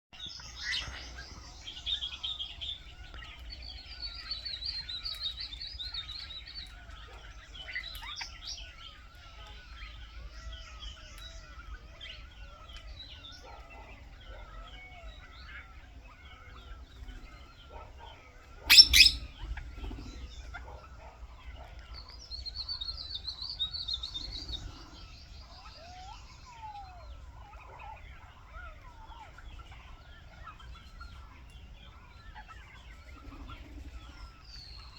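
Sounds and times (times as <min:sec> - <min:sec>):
birds chirping and calling: 0:00.2 - 0:34.9
repeating warbling bird call: 0:18.7 - 0:19.3.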